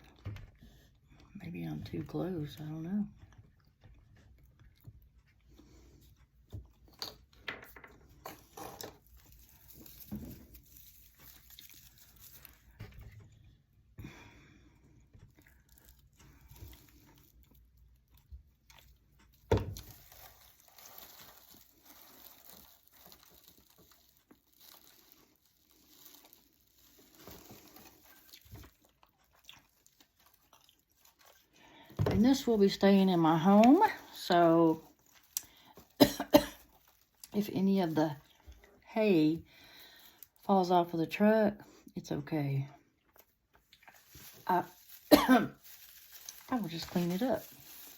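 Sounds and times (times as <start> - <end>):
rustling of dry raffia: 8.8 - 13.1, 19.7 - 28.8, 43.8 - 47.9.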